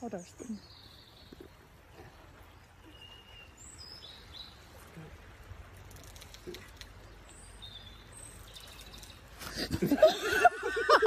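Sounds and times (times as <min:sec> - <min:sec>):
faint outdoor background noise: 0:00.0 - 0:11.0
birds whistling calls: 0:02.7 - 0:04.7.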